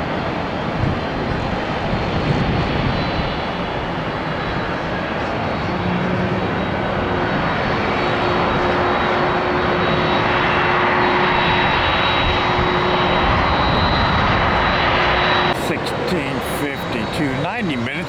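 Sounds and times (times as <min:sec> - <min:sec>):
jet engine rush: 0:15.5 - 0:18.0.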